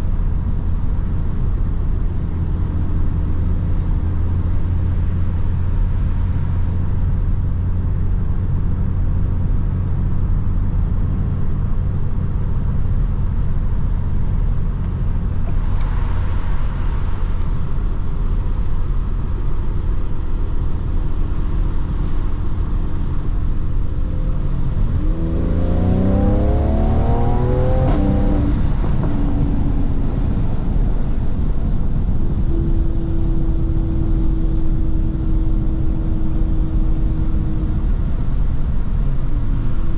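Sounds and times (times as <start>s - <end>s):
car engine accelerating: 12.3s - 39.9s.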